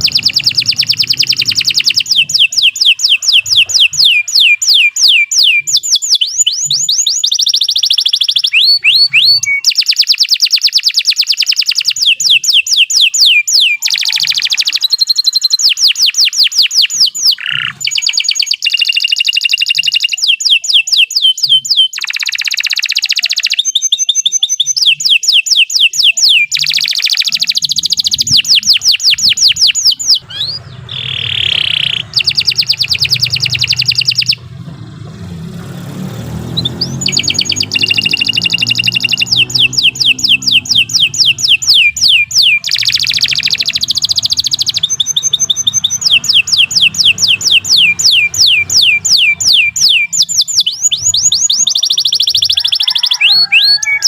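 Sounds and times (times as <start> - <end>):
low hum: 0.0 - 4.1, 28.0 - 41.4
canary singing trills: 0.0 - 54.0.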